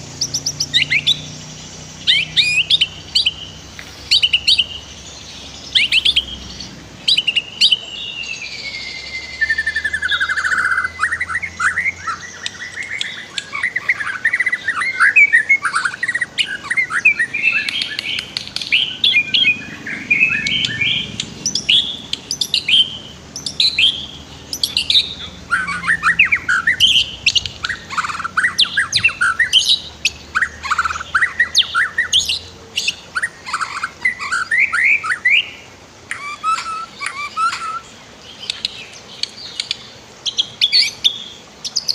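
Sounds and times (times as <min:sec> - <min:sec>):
bird singing whistles and trills: 0:00.2 - 0:41.9.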